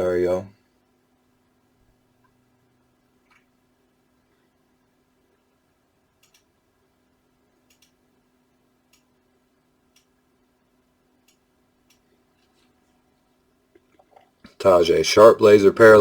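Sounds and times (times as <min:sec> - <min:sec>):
steady low hum: 0:00.0 - 0:16.0
faint sharp clicks: 0:03.2 - 0:03.5, 0:06.2 - 0:06.5, 0:07.6 - 0:08.0, 0:08.9 - 0:09.1, 0:09.9 - 0:10.2, 0:11.2 - 0:12.7.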